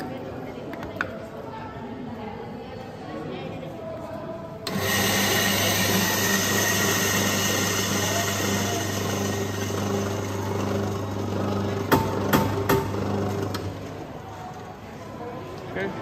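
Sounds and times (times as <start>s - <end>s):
machine motor humming and hissing: 4.7s - 13.9s.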